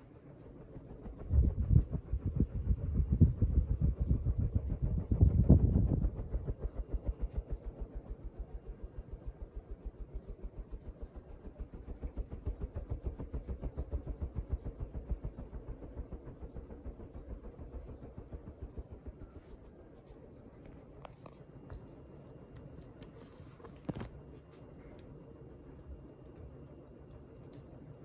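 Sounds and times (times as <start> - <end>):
ceiling fan whooshing: 1.0 - 6.6.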